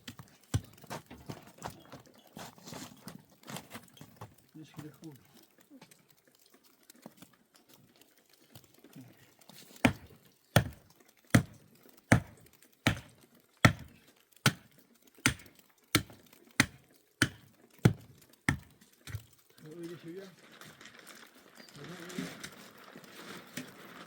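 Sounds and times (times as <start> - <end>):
tool striking something solid: 13.7 - 13.9.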